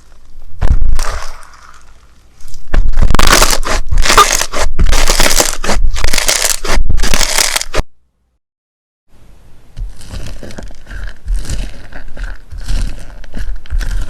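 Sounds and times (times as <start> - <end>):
slime crackling and crunching: 2.4 - 7.8, 9.8 - 14.0.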